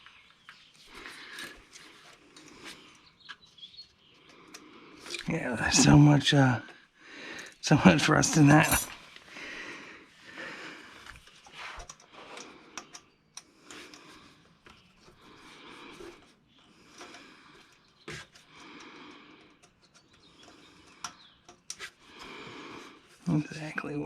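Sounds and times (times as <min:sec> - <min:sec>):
small parts clicking: 0:11.0 - 0:22.0.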